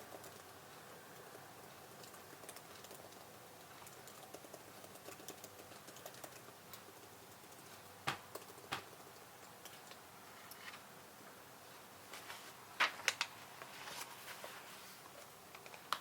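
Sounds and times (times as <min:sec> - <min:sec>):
keyboard typing clicks: 0:03.8 - 0:06.5.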